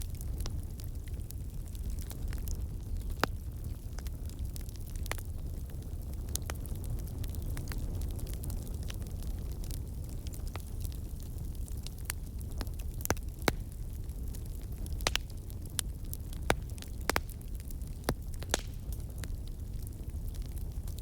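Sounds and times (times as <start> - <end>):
campfire crackling: 0.0 - 21.0
low rumble of flames: 0.0 - 21.0
logs popping and snapping: 14.9 - 19.3.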